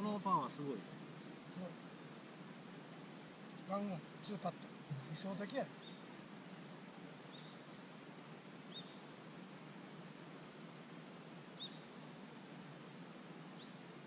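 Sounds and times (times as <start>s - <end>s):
bird chirping: 0.0s - 6.2s, 7.2s - 8.0s, 8.6s - 9.2s, 11.5s - 12.1s, 13.5s - 13.9s
faint outdoor hiss: 0.0s - 14.0s.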